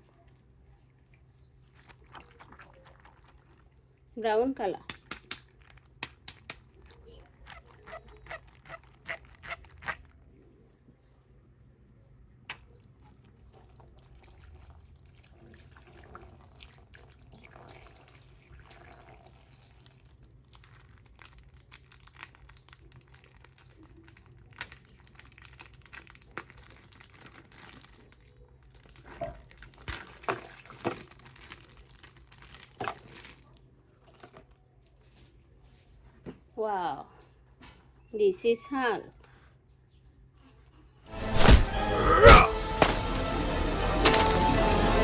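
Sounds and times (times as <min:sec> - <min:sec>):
faint running water: 0:00.0 - 0:04.5, 0:13.0 - 0:20.5
plastic crinkling: 0:04.9 - 0:10.4, 0:19.8 - 0:35.8, 0:44.0 - 0:45.0.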